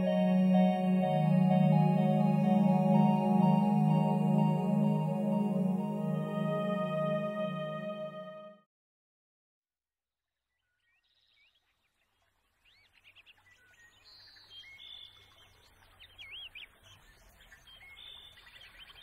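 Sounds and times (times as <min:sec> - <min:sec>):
songbirds chirping and whistling: 0:12.7 - 0:19.0.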